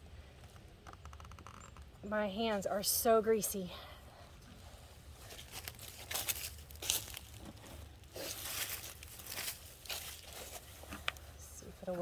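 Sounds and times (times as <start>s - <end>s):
rustling crinkling scrapes: 4.6s - 11.4s.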